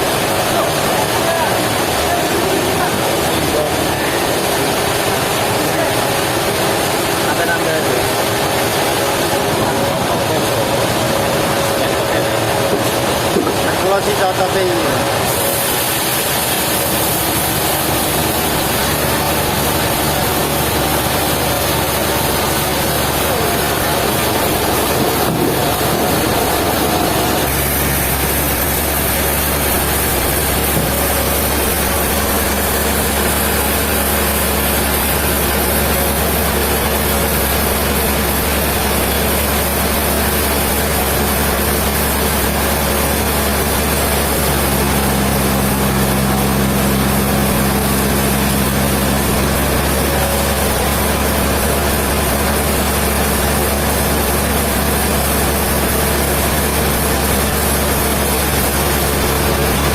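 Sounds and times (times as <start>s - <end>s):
low engine note: 0.0s - 59.9s
sawmill machinery running: 0.0s - 59.9s
deep hum: 14.9s - 53.9s.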